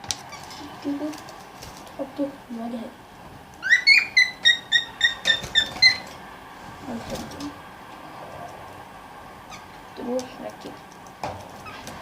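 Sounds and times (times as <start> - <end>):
parrot chirping: 3.6 - 6.2, 9.5 - 9.8.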